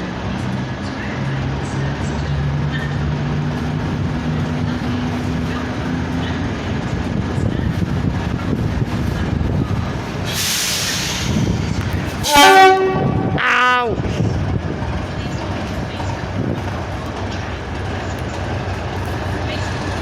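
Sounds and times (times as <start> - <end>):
train rumbling: 0.0 - 20.0
loud hiss: 10.2 - 11.7.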